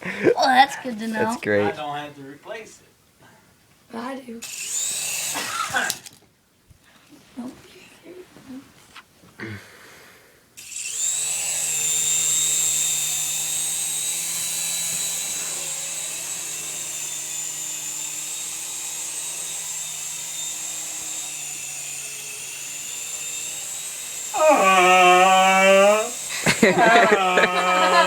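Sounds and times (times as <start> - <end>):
person speaking: 0.0 - 1.8, 26.8 - 28.0
toy helicopter motor whine: 4.4 - 6.1, 10.6 - 28.0.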